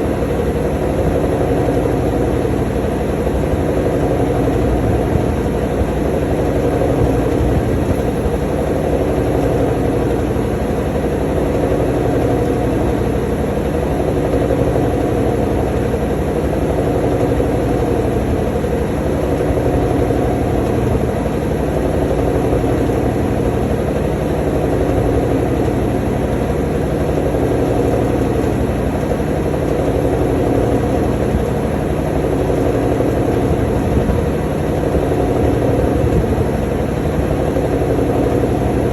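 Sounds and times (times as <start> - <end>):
drain pump running: 0.0 - 38.9
washing machine spinning: 0.0 - 38.9.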